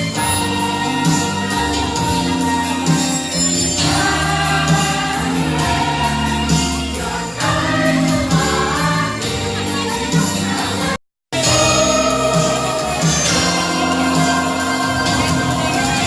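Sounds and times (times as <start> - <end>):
choir singing christmas music: 0.0 - 16.0
instrumental accompaniment with beat: 0.0 - 16.0.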